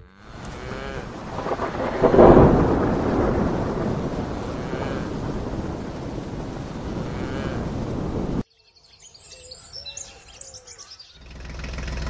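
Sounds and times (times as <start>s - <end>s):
steady rain: 0.3s - 8.4s
thunder clap: 0.4s - 8.4s.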